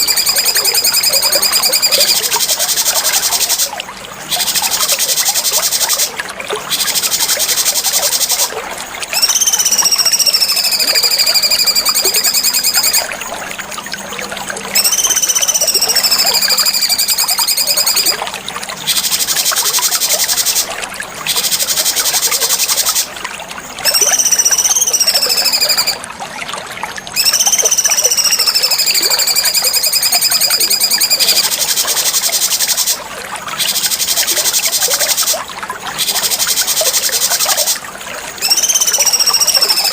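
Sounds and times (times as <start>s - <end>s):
fast high chattering trills: 0.0s - 3.7s, 9.1s - 13.1s, 14.8s - 18.2s, 23.8s - 26.0s, 27.2s - 33.0s, 38.4s - 39.9s
songbird whistled notes: 0.0s - 3.7s, 9.1s - 13.1s, 14.7s - 18.2s, 23.8s - 26.0s, 27.1s - 33.0s, 38.4s - 39.9s
steady trickle-like hiss: 0.0s - 39.9s.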